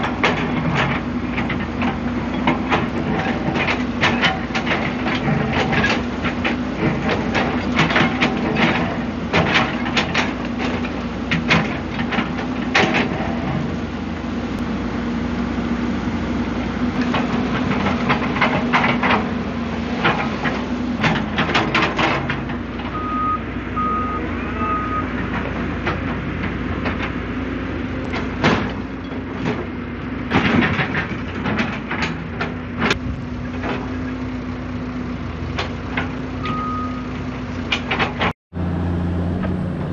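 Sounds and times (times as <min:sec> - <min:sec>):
excavator diesel engine running: 0:00.0 - 0:39.9
reversing beeps: 0:22.9 - 0:25.1, 0:36.4 - 0:37.1.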